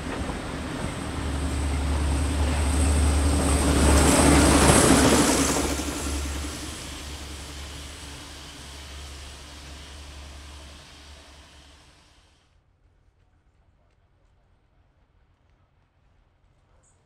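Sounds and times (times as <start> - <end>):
train passing with rumble: 0.0 - 12.4.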